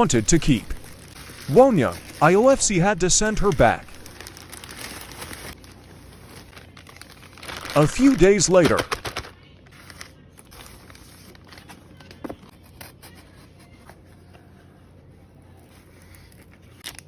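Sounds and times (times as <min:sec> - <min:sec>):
packaging rustling and scraping: 0:03.4 - 0:14.5.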